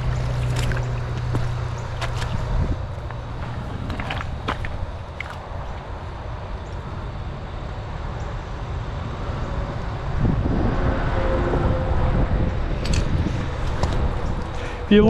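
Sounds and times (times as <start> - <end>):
vehicle passing: 0.0 - 6.0
low outdoor rumble: 0.0 - 15.0.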